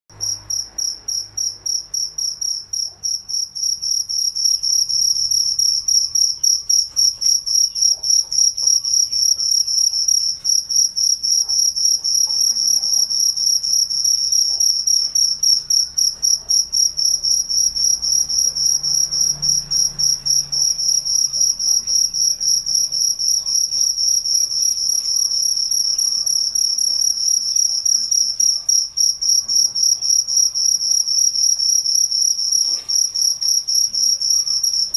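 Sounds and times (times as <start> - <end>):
cricket chirping: 0.1 - 34.9.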